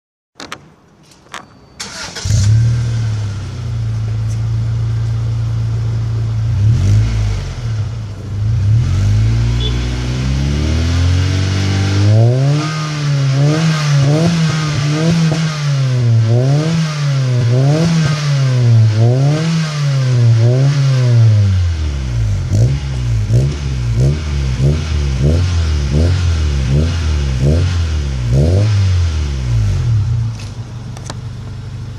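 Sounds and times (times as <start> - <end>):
car engine starting: 1.8 - 31.9
car engine revving: 5.7 - 31.2
car engine idling: 29.0 - 31.9.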